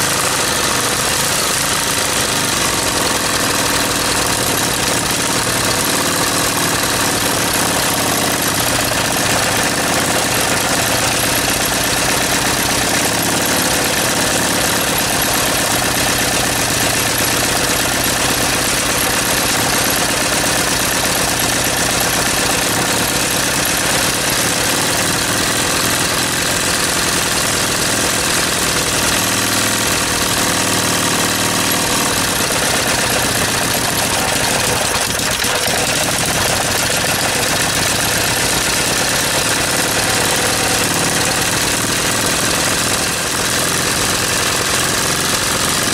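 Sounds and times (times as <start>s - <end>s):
engine running: 0.0s - 45.9s.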